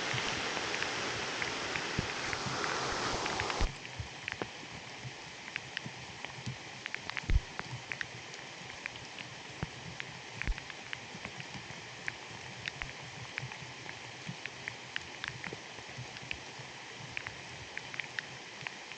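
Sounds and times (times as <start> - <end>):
heavy rain hissing: 0.0 - 3.8
raindrops tapping and plopping: 0.0 - 18.9.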